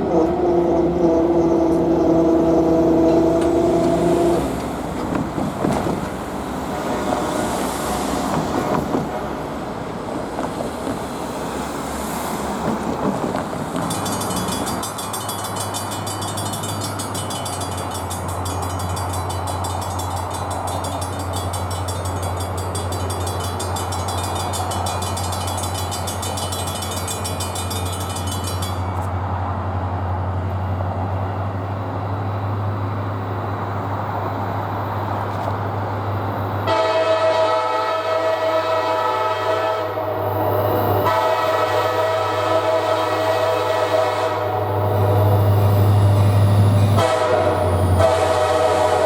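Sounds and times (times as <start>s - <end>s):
locomotive air horn chord: 0.0s - 4.6s, 6.6s - 8.3s, 36.6s - 40.4s, 41.0s - 45.4s, 46.0s - 49.0s
diesel locomotive engine rumble: 0.0s - 49.0s.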